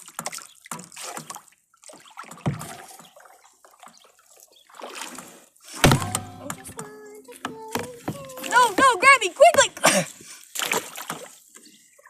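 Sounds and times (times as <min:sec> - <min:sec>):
kayak splashing in water: 0:00.0 - 0:12.0
kayak knocks: 0:02.0 - 0:03.1, 0:05.8 - 0:09.9.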